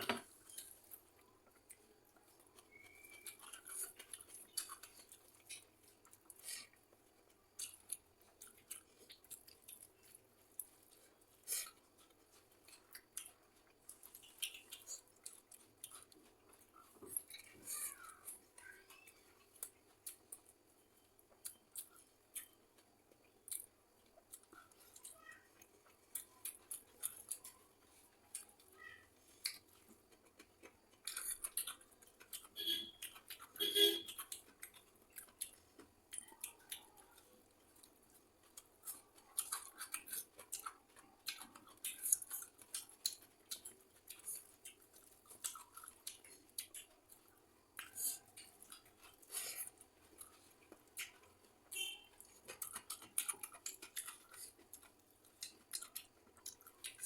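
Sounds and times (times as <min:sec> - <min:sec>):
person chewing crunchy food: 0:00.0 - 0:57.0.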